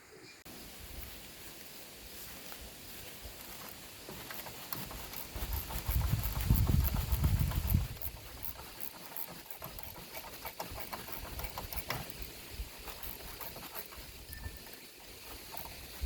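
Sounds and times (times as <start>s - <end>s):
faint steady hiss: 0.0s - 16.0s
light clicks and taps: 3.4s - 16.0s.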